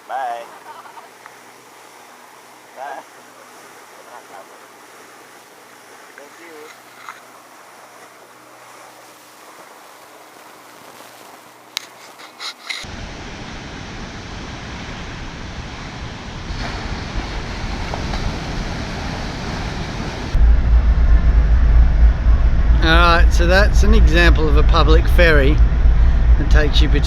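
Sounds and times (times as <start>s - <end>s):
water rushing: 0.0s - 11.8s, 12.8s - 20.4s
wind: 0.0s - 27.0s
low hum: 12.9s - 27.0s
wind buffeting microphone: 12.9s - 27.0s.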